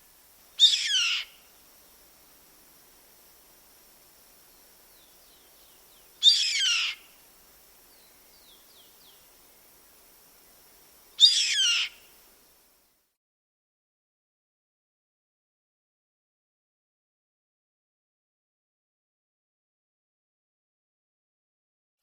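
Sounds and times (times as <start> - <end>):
harsh falling bird calls: 0.6 - 1.5, 4.9 - 7.2, 11.2 - 12.2.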